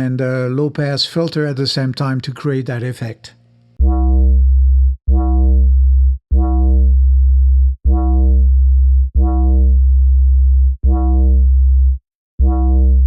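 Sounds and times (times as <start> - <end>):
synth bass notes: 3.8 - 13.0.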